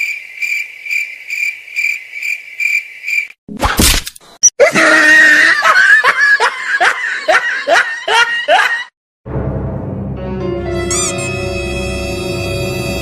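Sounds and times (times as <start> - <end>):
laughter sound effect: 4.6 - 9.0
low music drone: 9.3 - 13.0.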